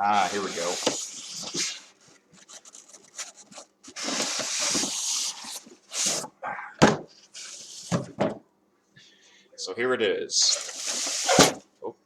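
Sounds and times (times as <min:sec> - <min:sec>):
styrofoam and cardboard scraping: 0:00.0 - 0:06.3, 0:07.3 - 0:08.0, 0:10.4 - 0:11.6.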